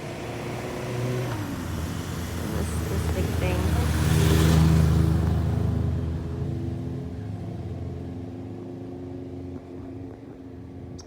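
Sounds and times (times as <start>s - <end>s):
steady engine hum: 0.0s - 8.3s.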